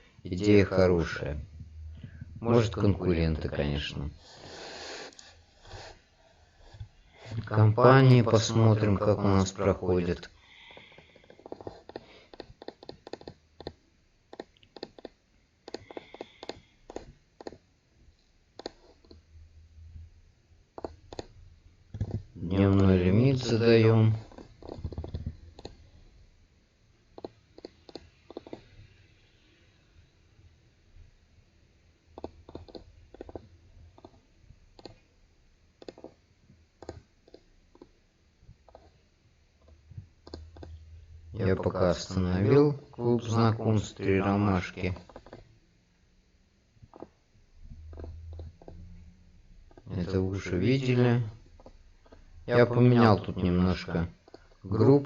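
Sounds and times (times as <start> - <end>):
computer keyboard typing: 11.2 - 17.6, 20.8 - 21.3, 21.9 - 22.2, 24.2 - 25.8, 32.2 - 34.2, 34.8 - 35.0, 35.8 - 36.2, 36.8 - 37.9, 38.7 - 38.9, 40.2 - 40.8, 45.0 - 45.4.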